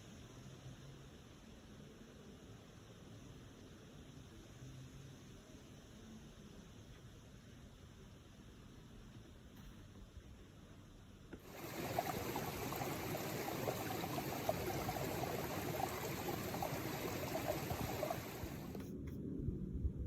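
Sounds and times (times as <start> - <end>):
stream water running: 11.4 - 18.8.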